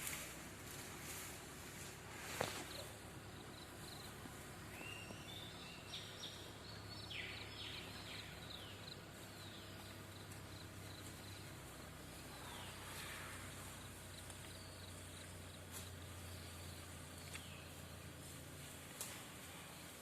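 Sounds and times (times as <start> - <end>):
bird chirping and whistling: 4.8 - 6.1.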